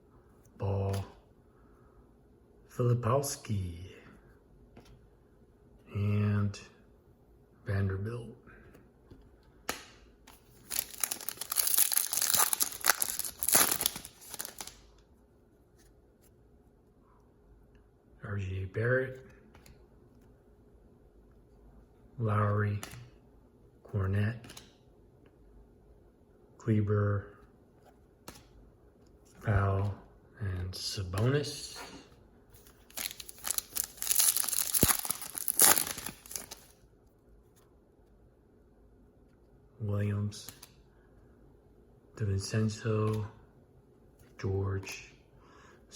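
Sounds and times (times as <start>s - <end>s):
wrapper tearing and crinkling: 10.5s - 14.9s, 32.8s - 36.7s.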